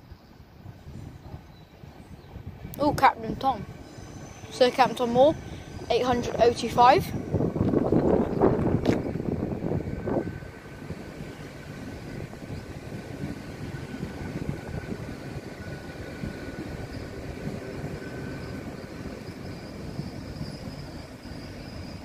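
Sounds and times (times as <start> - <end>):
train rumbling: 0.0 - 22.0
thin high whine: 2.8 - 9.2.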